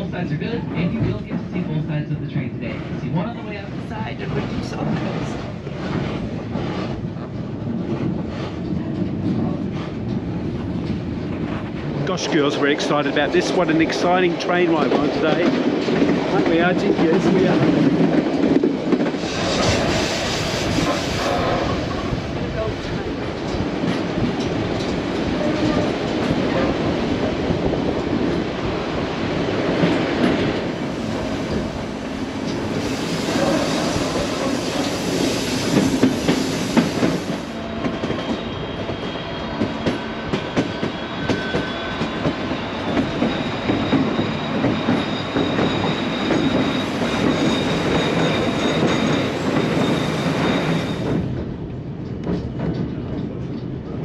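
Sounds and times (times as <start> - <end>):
train wheels clattering over rail joints: 39.6 - 54.0
faint wheel squeal: 40.6 - 51.2.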